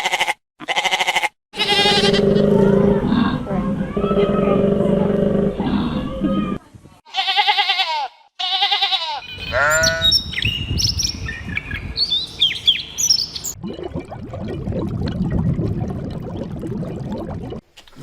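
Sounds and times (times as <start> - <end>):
animal bleating: 0.0 - 2.4, 7.1 - 10.1
low rumbling noise: 1.6 - 6.6, 13.5 - 17.6
birds chirping: 9.2 - 13.6.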